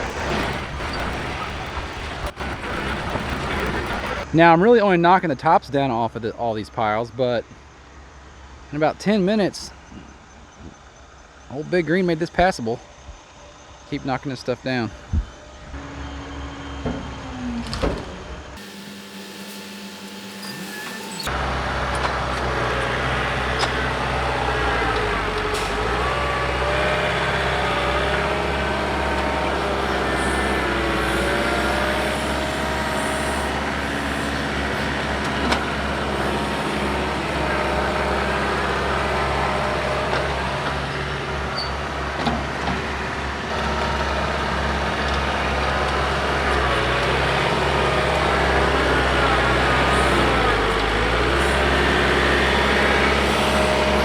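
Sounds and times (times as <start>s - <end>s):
engine whine: 0.0s - 4.3s, 14.9s - 54.0s
tractor diesel engine under load: 0.0s - 4.3s, 15.7s - 54.0s.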